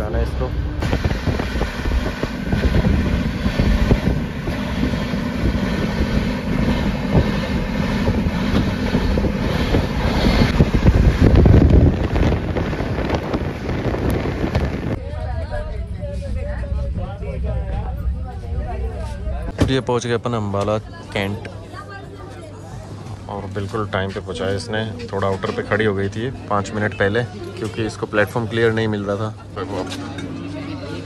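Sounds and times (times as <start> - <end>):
train running gear rumble: 0.0 - 19.6
train rattle and clatter: 0.2 - 15.0.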